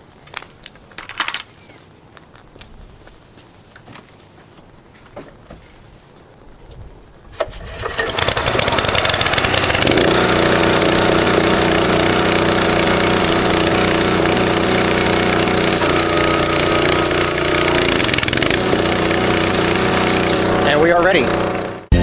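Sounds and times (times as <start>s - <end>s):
pressure washer engine running: 7.9s - 22.0s.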